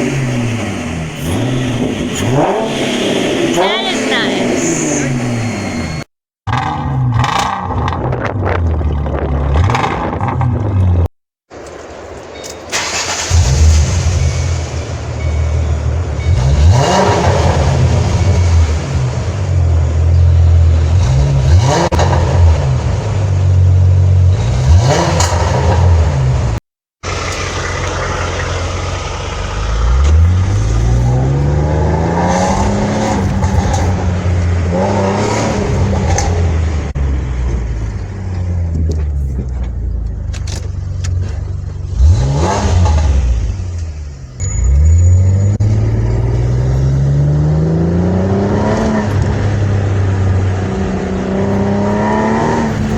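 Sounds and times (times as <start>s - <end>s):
car engine accelerating: 0.0s - 11.1s, 12.7s - 52.9s
car engine revving: 0.0s - 11.1s, 12.7s - 52.9s.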